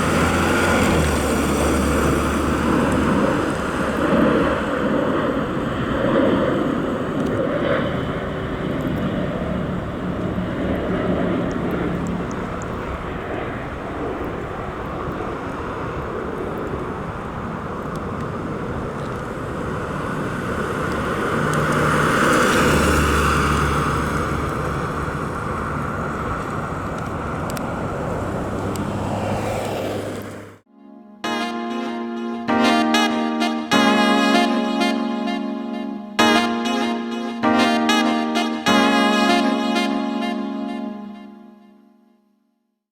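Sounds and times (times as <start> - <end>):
tyre noise on road: 0.0 - 30.6
car engine driving: 0.0 - 30.7.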